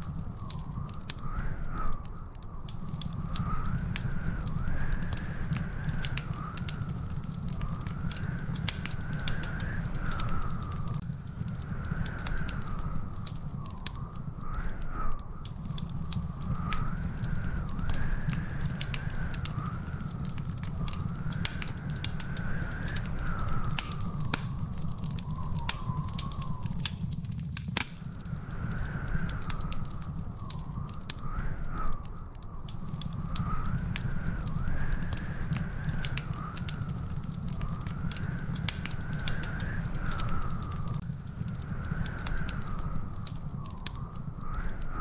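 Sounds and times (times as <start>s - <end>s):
wood fire crackling and popping: 0.0s - 45.0s
faint wavering whistle tone: 11.8s - 27.2s, 28.0s - 45.0s.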